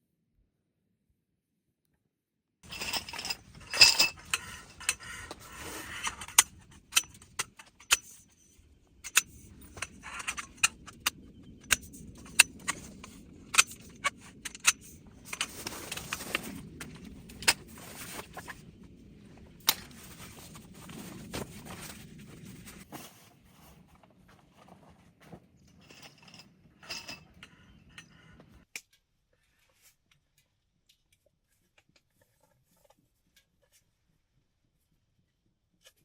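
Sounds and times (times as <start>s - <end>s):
hard items clinking: 2.6s - 8.3s, 9.0s - 18.7s, 24.6s - 28.4s
rustling: 2.7s - 7.8s, 12.0s - 27.4s.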